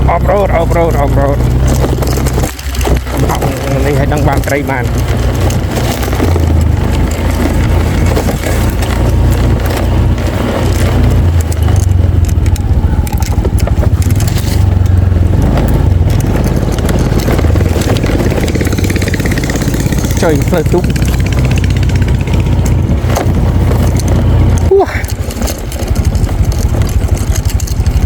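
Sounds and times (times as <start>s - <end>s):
vehicle engine drone: 0.0s - 28.0s
clattering and scraping: 0.2s - 28.0s.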